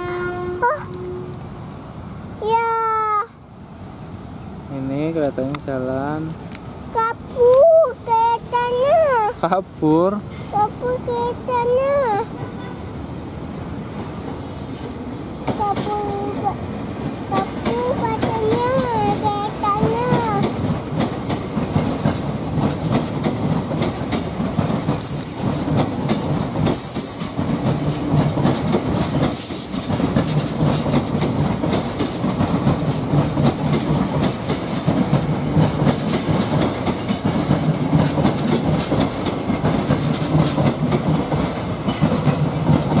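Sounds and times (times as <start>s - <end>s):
train wheels clattering over rail joints: 13.9s - 43.0s.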